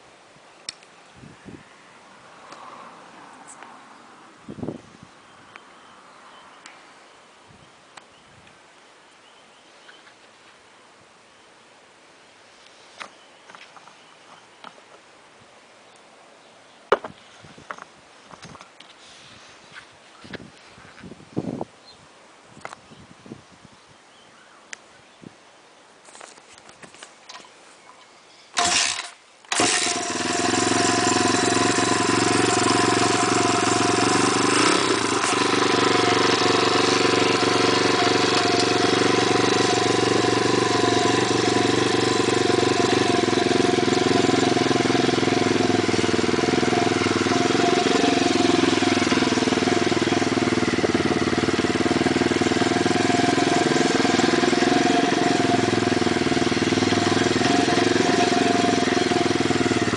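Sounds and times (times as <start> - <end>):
motorbike engine starting and idling: 28.6 - 59.9.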